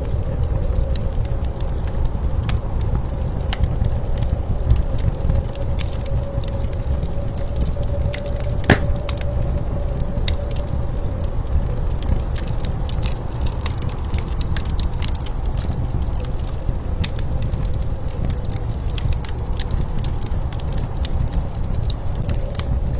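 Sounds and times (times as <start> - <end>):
wood fire crackling and popping: 8.7 - 9.1.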